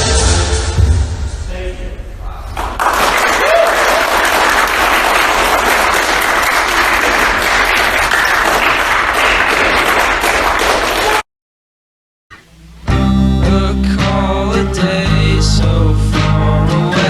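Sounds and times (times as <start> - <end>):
audience applauding: 2.6 - 11.2.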